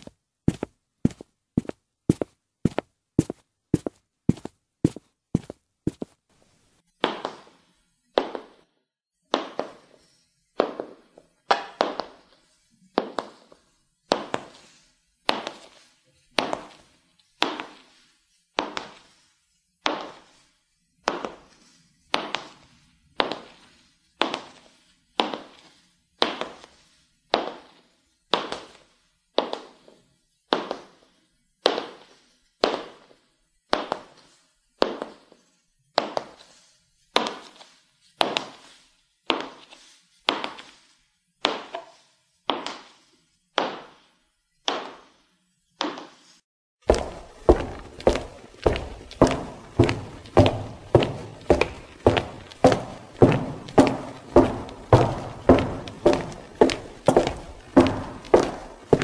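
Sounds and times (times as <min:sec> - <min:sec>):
high heels clicking on hard floor: 0:00.0 - 0:06.2, 0:07.0 - 0:07.6, 0:08.2 - 0:08.6, 0:09.3 - 0:09.8, 0:10.6 - 0:12.2, 0:16.4 - 0:16.8, 0:17.4 - 0:17.8, 0:29.4 - 0:29.8, 0:30.5 - 0:30.8, 0:34.8 - 0:35.2, 0:37.2 - 0:37.6, 0:39.3 - 0:39.7, 0:40.3 - 0:40.7, 0:41.4 - 0:41.9, 0:42.5 - 0:42.9, 0:43.6 - 0:44.0, 0:44.7 - 0:45.1, 0:45.8 - 0:46.1, 0:46.8 - 0:59.0.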